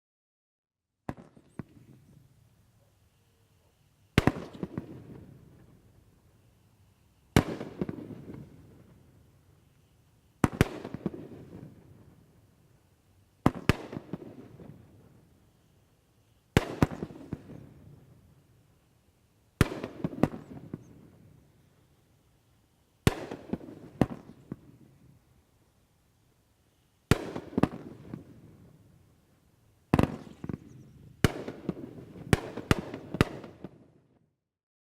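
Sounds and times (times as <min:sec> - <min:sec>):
firework shots: 0:01.1 - 0:02.1, 0:04.1 - 0:05.9, 0:07.3 - 0:09.2, 0:10.4 - 0:12.3, 0:13.4 - 0:15.2, 0:16.5 - 0:18.2, 0:19.6 - 0:21.4, 0:23.0 - 0:24.9, 0:27.1 - 0:28.8, 0:29.9 - 0:33.9
smaller crackling pops: 0:04.2 - 0:05.8, 0:29.9 - 0:33.7.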